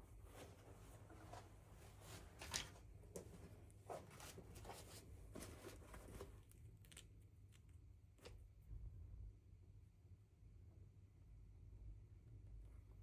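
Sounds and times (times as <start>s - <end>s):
soft rustling: 0.0s - 7.0s.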